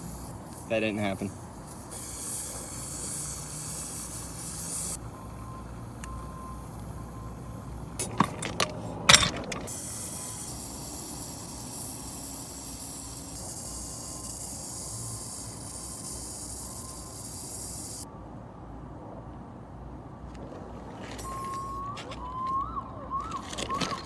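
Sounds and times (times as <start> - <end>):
high hiss: 0.0 - 8.1, 9.7 - 18.1
sharp metallic clicks and clanks: 7.8 - 18.0.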